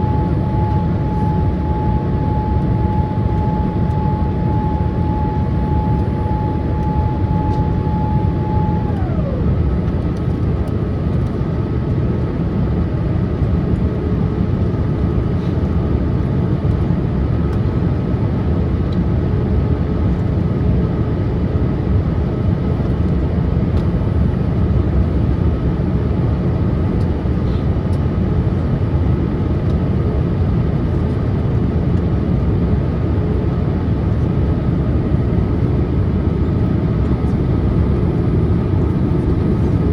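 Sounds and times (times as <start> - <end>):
high steady tone: 0.0 - 9.4
whine gliding down in pitch: 0.0 - 11.2
airliner cabin roar: 0.0 - 39.9.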